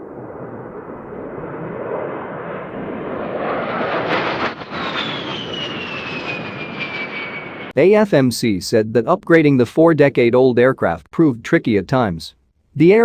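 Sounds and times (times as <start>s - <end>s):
jet engines flying past: 0.0s - 7.8s.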